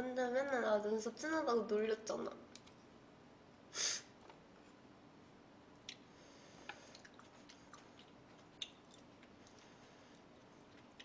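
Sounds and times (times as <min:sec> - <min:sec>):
breathy hiss: 0:03.7 - 0:04.2
wet mouth clicks chewing: 0:06.7 - 0:09.7.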